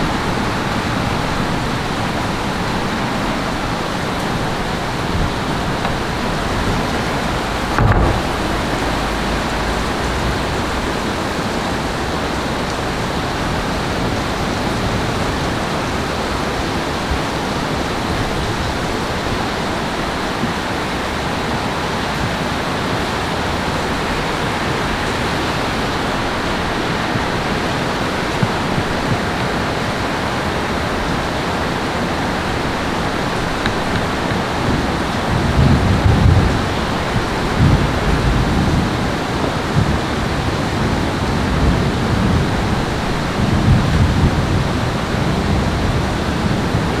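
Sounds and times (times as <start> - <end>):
heavy rain and rushing water: 0.0 - 47.0
low thump: 7.6 - 10.2.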